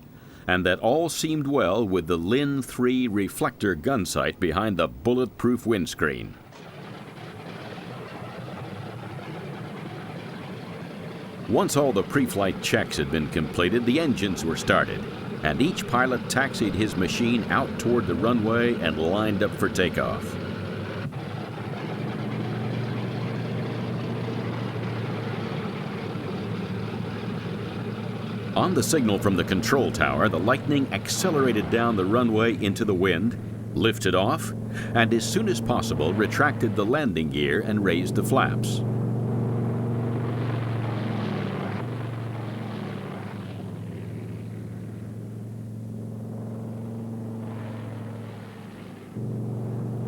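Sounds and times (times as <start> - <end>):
propeller aircraft engines droning: 0.0 - 50.0.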